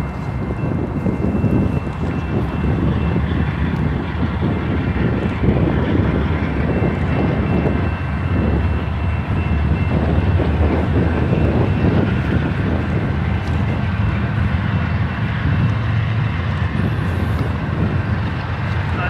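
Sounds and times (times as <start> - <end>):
freight train rolling past: 0.0 - 19.0.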